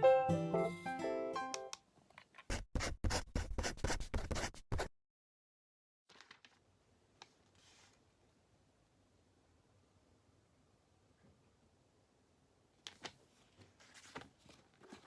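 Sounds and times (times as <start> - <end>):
scratching on paper: 2.5 - 4.9.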